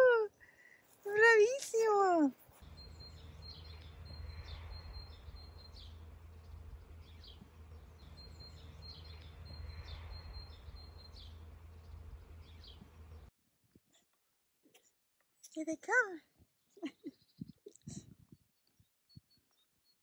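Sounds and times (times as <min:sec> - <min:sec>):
birds chirping and calling: 0:02.6 - 0:13.3
steady low rumble: 0:02.6 - 0:13.3.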